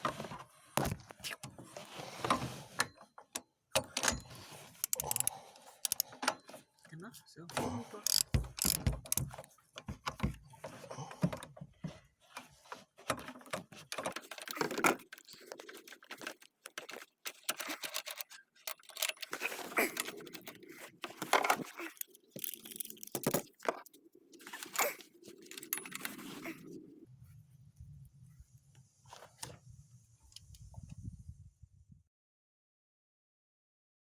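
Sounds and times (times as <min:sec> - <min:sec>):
tool clicks: 0:03.8 - 0:06.4, 0:08.0 - 0:09.5.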